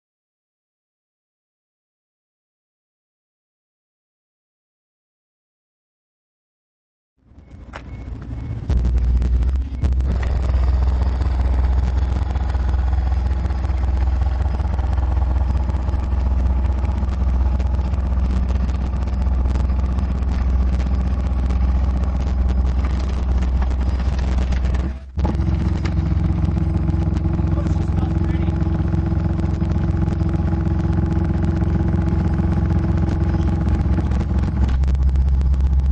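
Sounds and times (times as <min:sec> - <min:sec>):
subwoofer deep bass note: 0:08.3 - 0:35.9.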